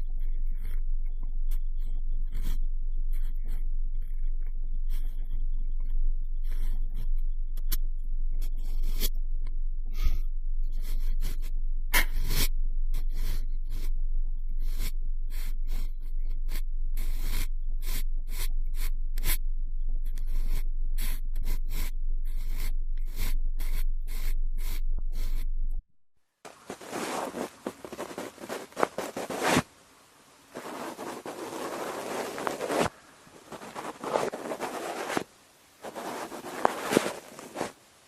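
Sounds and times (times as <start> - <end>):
cotton swab scratching microphone: 0.0 - 9.2, 9.9 - 19.4, 20.0 - 25.6, 26.5 - 29.7, 30.5 - 37.8
steady low rumble: 0.0 - 25.9.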